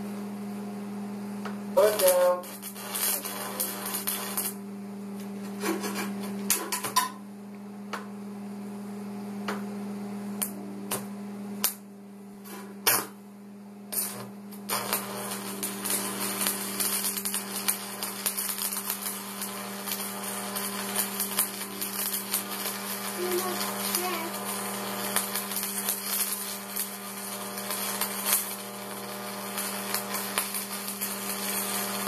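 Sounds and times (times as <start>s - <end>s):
welder electrical hum: 0.0s - 32.0s
welding arc crackling: 1.8s - 4.6s, 13.9s - 32.0s.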